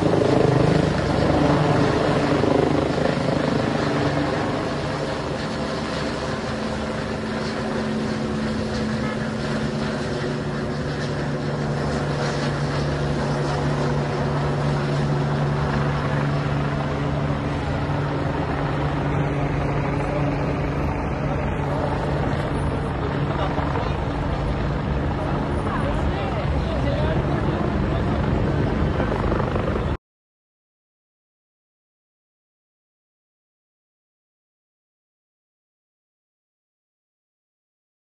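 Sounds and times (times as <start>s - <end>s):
helicopter engine and rotor: 0.0s - 30.0s.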